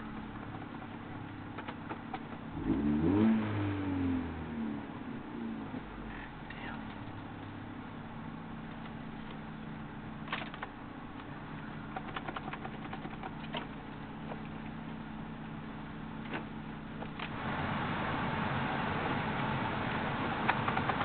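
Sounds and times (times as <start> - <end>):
car engine idling: 0.0 - 21.0
sharp clicks: 11.9 - 13.7.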